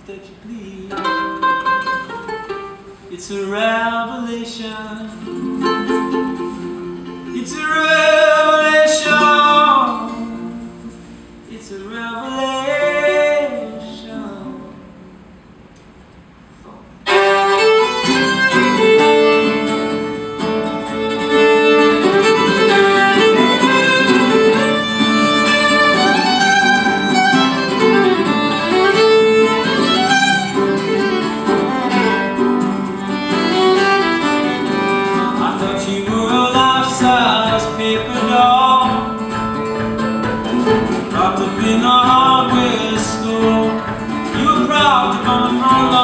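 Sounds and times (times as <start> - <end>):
strummed guitar: 0.0 - 15.9, 17.0 - 46.0
violin melody: 17.0 - 46.0.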